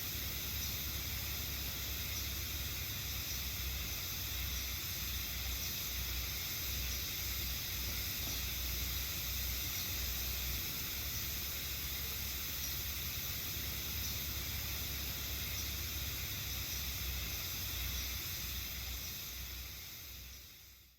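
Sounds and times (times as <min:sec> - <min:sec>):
cicadas buzzing: 0:00.0 - 0:20.9.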